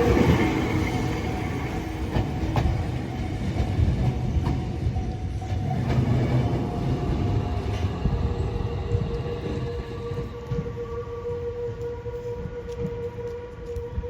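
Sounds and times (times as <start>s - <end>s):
electric train rumbling on rails: 0.0s - 14.0s.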